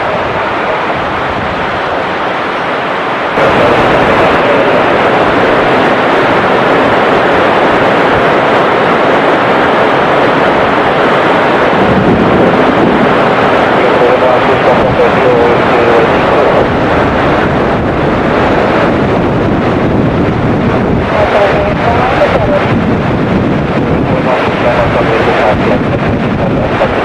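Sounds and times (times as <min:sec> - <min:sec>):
heavy rain: 0:00.0 - 0:27.0
jet airliner engines: 0:00.0 - 0:27.0
strong wind: 0:00.0 - 0:27.0.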